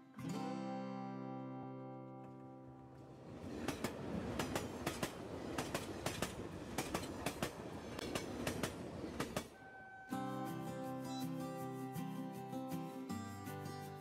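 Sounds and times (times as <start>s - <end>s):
train rumble: 3.0s - 9.8s
train wheels clacking over rail joints: 3.2s - 9.6s.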